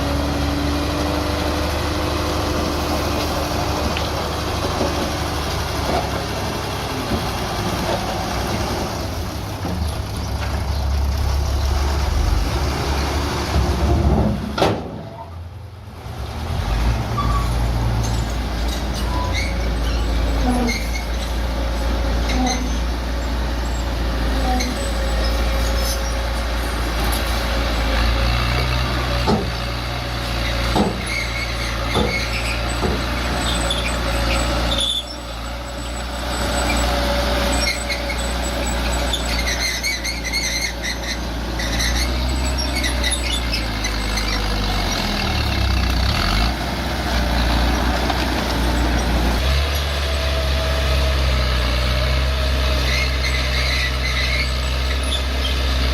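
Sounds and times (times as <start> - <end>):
bulldozer diesel engine running: 0.0 - 55.9
high metallic squeaks: 17.2 - 23.0, 24.4 - 26.7, 33.4 - 44.5, 52.8 - 55.7.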